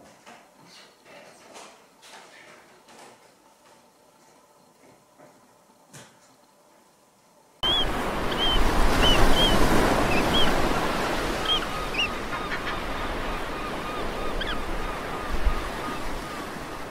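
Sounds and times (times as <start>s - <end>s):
birds calling: 7.6s - 16.9s
waves washing on shore: 7.6s - 16.9s.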